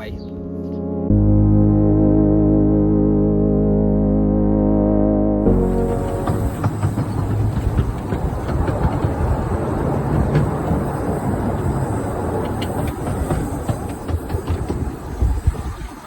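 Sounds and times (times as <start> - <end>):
steam locomotive rumbling: 5.5 - 16.0
wheels clicking and knocking: 5.5 - 16.0.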